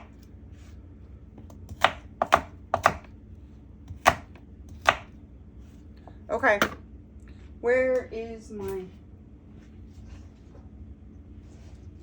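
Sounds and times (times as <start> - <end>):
knife chopping on cutting board: 1.5 - 3.1, 3.9 - 5.1.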